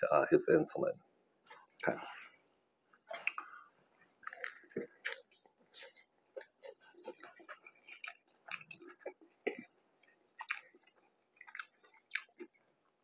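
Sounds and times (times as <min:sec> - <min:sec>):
wet smacking chewing: 0:02.9 - 0:12.7.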